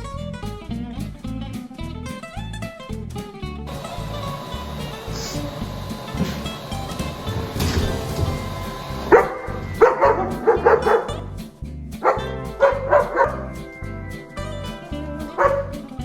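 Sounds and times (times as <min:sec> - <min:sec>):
background music: 0:03.6 - 0:16.0
dog barking: 0:07.0 - 0:11.2, 0:12.0 - 0:13.6, 0:15.4 - 0:15.8.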